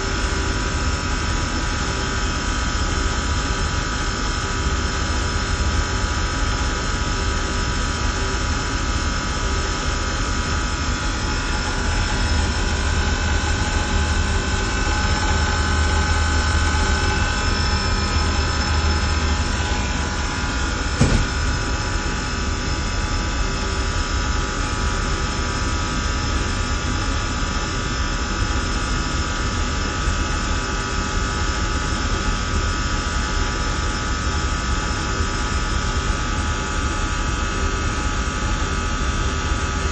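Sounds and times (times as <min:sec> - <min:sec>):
hvac equipment humming: 0:00.0 - 0:39.9
steady whining tones: 0:09.0 - 0:26.9.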